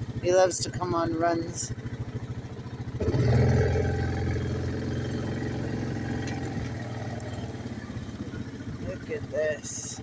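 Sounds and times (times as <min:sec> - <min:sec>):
atv engine throttling: 0:00.0 - 0:10.0.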